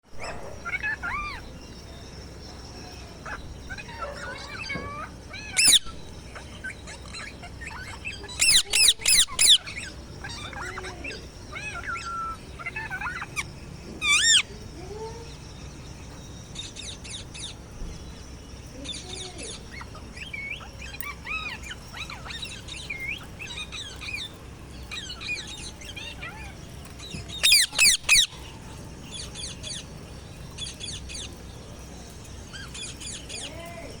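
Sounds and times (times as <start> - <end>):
parrot squawking: 3.2 - 14.5, 27.3 - 28.5
parrot chirps and whistles: 5.4 - 6.0, 27.4 - 28.3.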